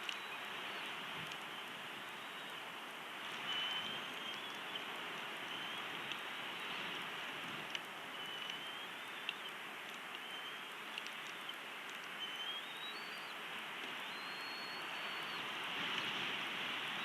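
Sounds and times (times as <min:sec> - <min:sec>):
small clicks: 0:00.0 - 0:00.2, 0:07.6 - 0:08.6, 0:09.2 - 0:12.3
outdoor hiss: 0:00.0 - 0:17.0
bird whistling: 0:03.5 - 0:04.8, 0:08.1 - 0:09.5, 0:10.2 - 0:10.7, 0:12.2 - 0:13.4, 0:14.0 - 0:15.5.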